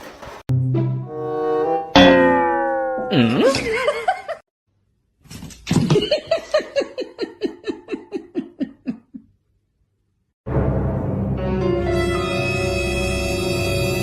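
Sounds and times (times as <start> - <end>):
person laughing: 3.1 - 4.4, 5.9 - 9.4.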